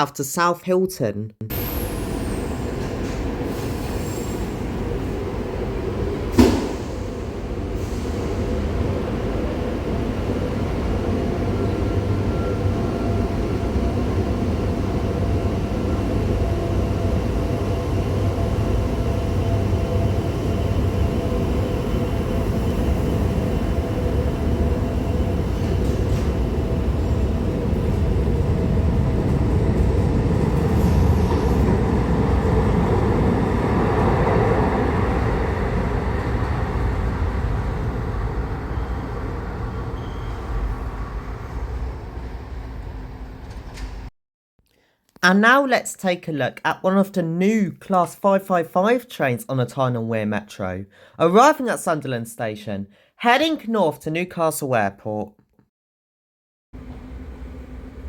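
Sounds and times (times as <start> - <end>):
train rumble with motor whine: 1.5 - 44.1, 56.8 - 58.0
sharp knock: 6.4 - 6.9.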